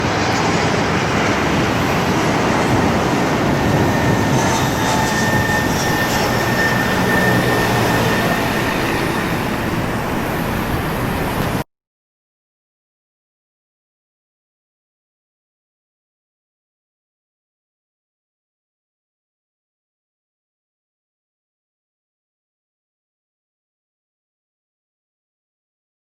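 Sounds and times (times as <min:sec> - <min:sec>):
jet engines roaring: 0:00.0 - 0:11.6.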